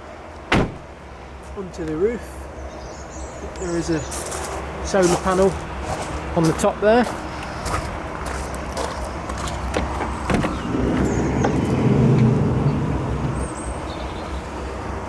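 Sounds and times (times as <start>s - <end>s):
motor vehicle passing by: 7.1s - 15.0s.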